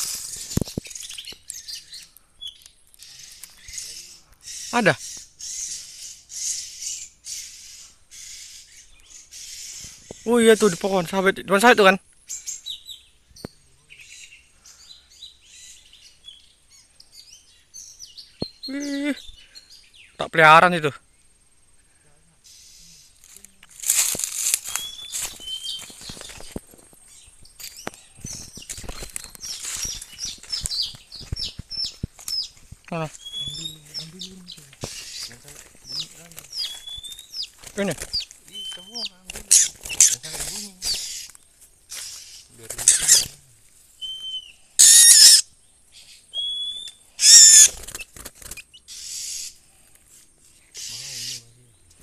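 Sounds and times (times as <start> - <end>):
bird chirping: 0.0 - 23.8, 24.6 - 52.0
rustling: 23.2 - 44.0.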